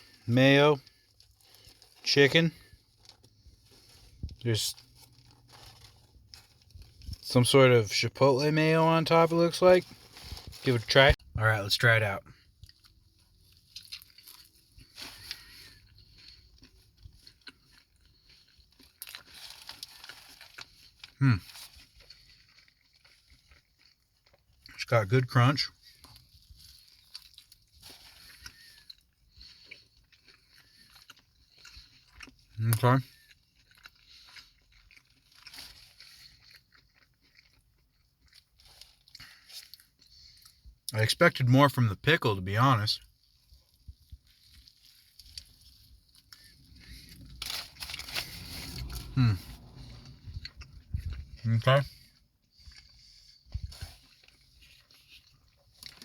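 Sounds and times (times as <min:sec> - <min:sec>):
person chewing crunchy food: 0:12.3 - 0:24.8, 0:25.7 - 0:40.9, 0:43.0 - 0:56.0.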